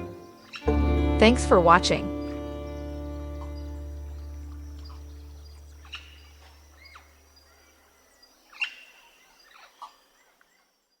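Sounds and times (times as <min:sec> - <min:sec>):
background music: 0:00.0 - 0:05.8
bird chirps and calls: 0:01.8 - 0:10.7.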